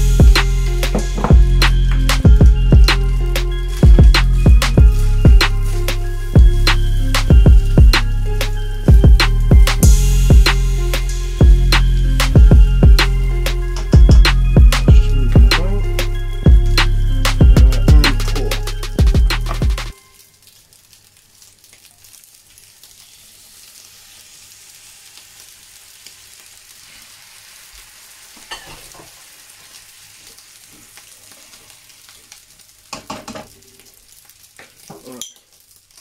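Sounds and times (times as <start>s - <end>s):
meat sizzling in a pan: 0.0s - 9.0s, 19.9s - 36.0s.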